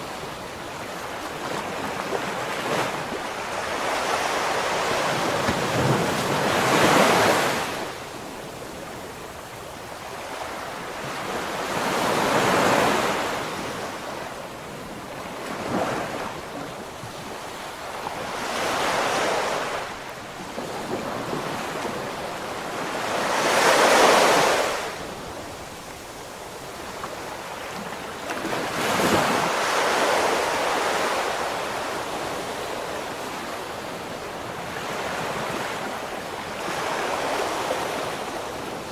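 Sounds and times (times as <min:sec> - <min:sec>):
ocean waves breaking: 0:00.0 - 0:08.0.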